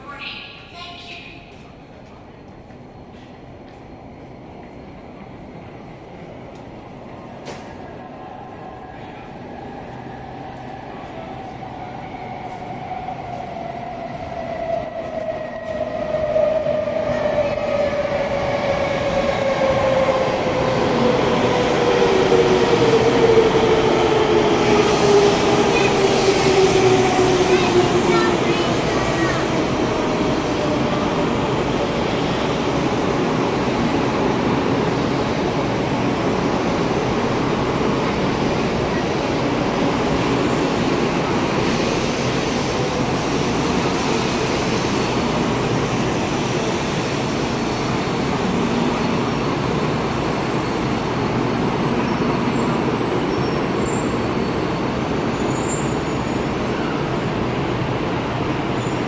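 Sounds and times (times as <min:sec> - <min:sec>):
train wheels on rails: 0:00.5 - 0:59.0.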